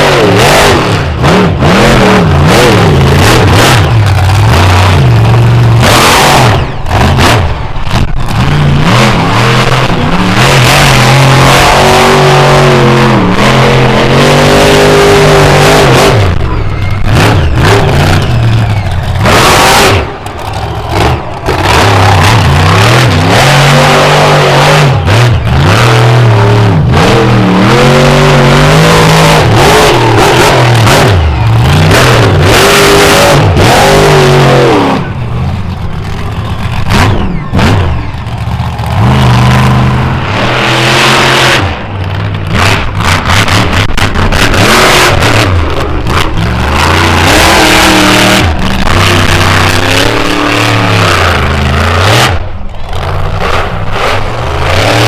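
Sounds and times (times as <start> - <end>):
truck engine revving: 0.0 - 55.0.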